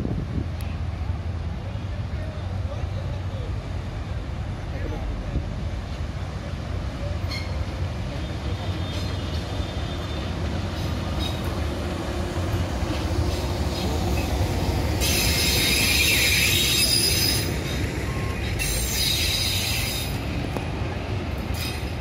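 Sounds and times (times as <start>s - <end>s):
train wheels rumbling on rails: 0.0s - 22.0s
high-pitched wheel squeal: 15.0s - 20.2s.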